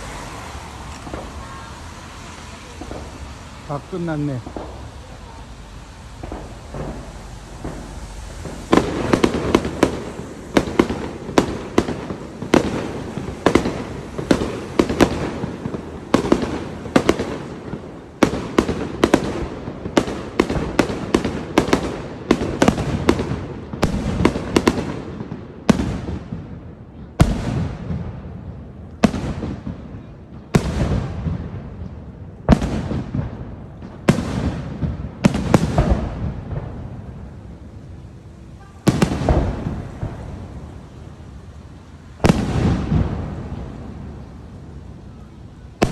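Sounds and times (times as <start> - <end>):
fireworks bursting: 0.0 - 45.9.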